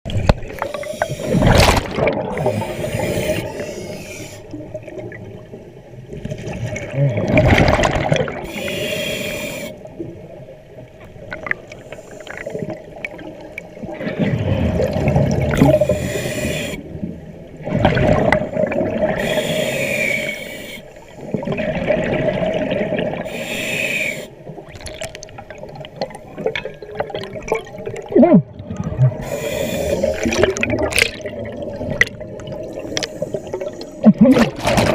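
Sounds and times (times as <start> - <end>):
regulator hiss: 8.5 - 9.8, 19.2 - 21.1, 23.3 - 24.3
bubbling exhalations: 27.0 - 33.1.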